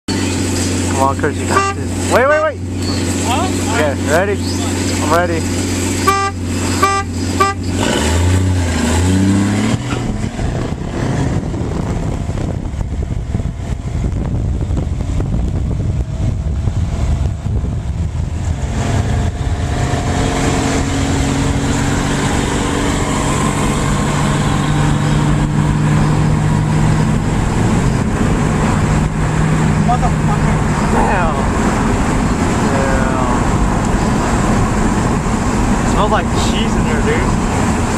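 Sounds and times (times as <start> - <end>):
engines revving and accelerating: 0.1 - 13.8, 16.0 - 37.9
car horn toots: 1.4 - 1.9, 6.0 - 7.9.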